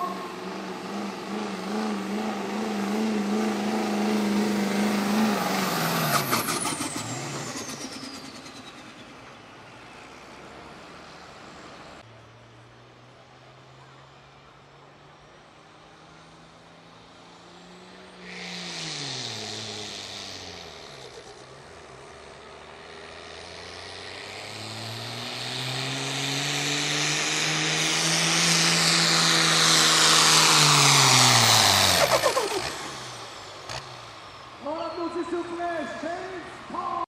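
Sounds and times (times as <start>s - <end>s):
pickup truck engine revving: 0.0s - 9.0s, 17.4s - 34.4s.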